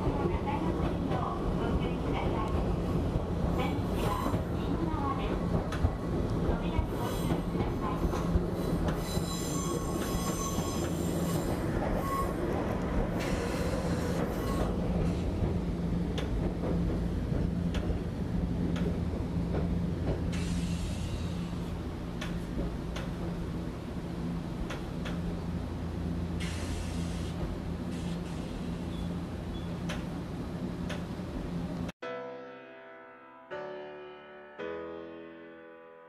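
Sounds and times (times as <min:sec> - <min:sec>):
train running hum: 0:00.0 - 0:31.9
train wheels squealing: 0:08.6 - 0:12.5, 0:13.2 - 0:14.8, 0:28.0 - 0:29.8.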